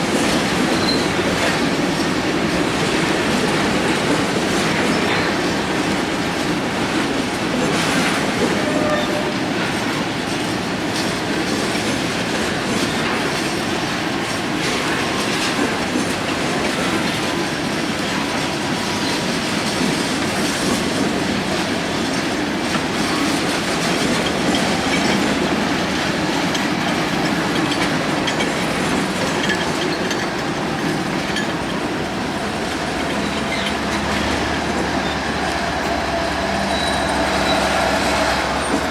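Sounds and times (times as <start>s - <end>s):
freight train cars rolling: 0.0s - 38.9s
wheels clicking over rail joints: 0.0s - 38.9s
faint thin wheel squeal: 36.7s - 37.8s.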